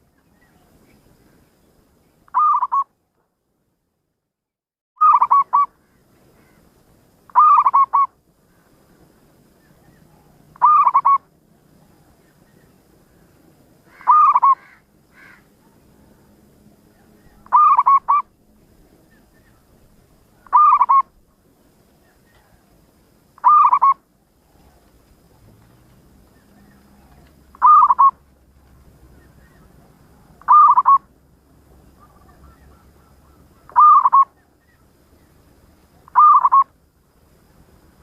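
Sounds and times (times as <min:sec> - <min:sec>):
dove cooing: 0:02.3 - 0:02.8, 0:07.3 - 0:08.1, 0:09.8 - 0:12.2, 0:13.9 - 0:14.8, 0:17.0 - 0:18.3, 0:20.3 - 0:21.2, 0:23.4 - 0:24.9, 0:26.3 - 0:28.2, 0:29.1 - 0:31.1, 0:31.9 - 0:34.8, 0:36.0 - 0:36.7.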